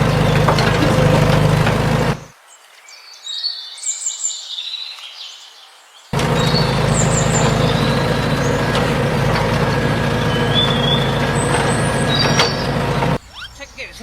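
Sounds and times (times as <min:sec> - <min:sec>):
large vehicle engine running: 0:00.0 - 0:02.3, 0:06.2 - 0:13.2
high bird chirps: 0:06.2 - 0:14.0.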